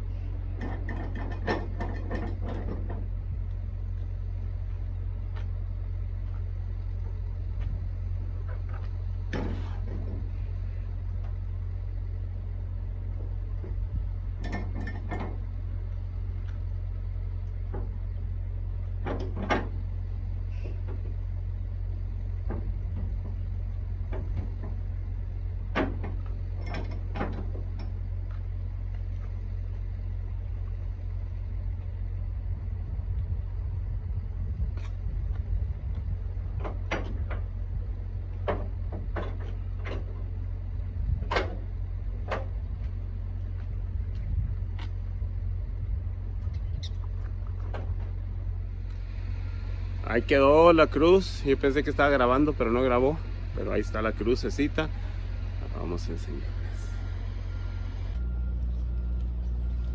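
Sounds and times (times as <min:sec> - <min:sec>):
truck engine droning: 0:00.0 - 0:59.9.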